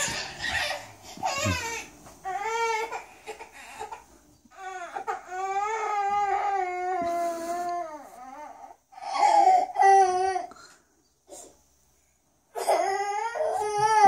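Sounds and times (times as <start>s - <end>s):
baby crying: 0.0s - 10.5s, 12.6s - 14.0s.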